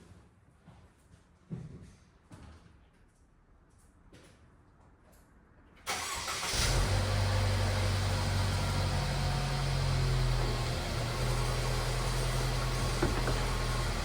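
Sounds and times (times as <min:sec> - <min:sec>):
car engine cranking: 0:05.9 - 0:14.0
car engine idling: 0:06.8 - 0:14.0.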